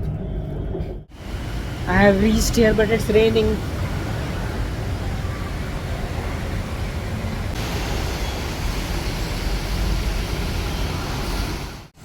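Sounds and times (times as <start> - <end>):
low rumble: 0.0 - 1.9
heavy rain hissing: 1.1 - 12.0.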